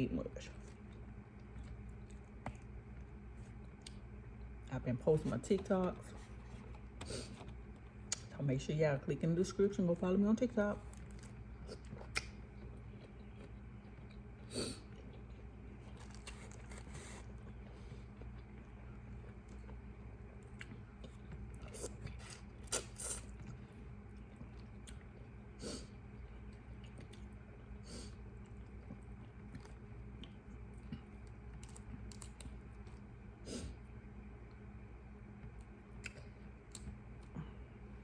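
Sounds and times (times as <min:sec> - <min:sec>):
steady low hum: 0:00.0 - 0:38.0
chewing: 0:00.6 - 0:04.6, 0:10.9 - 0:33.1, 0:35.4 - 0:37.4.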